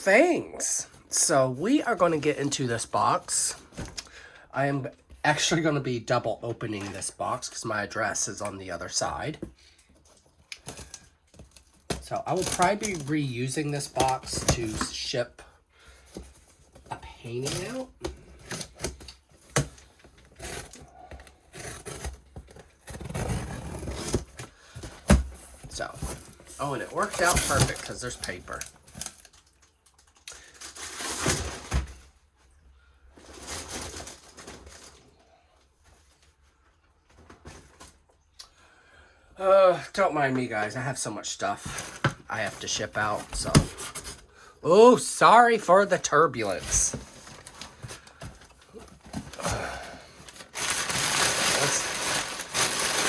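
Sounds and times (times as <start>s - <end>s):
packing paper rustling: 10.0s - 15.2s, 15.8s - 32.2s, 33.2s - 36.2s, 45.6s - 53.0s.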